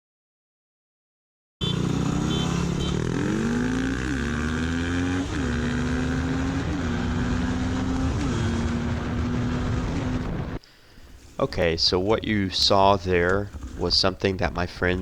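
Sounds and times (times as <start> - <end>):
motorcycle engine accelerating: 1.6 - 10.6.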